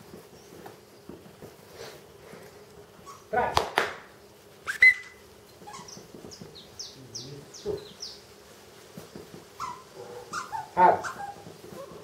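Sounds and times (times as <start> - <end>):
songbird chirping: 4.7 - 8.4.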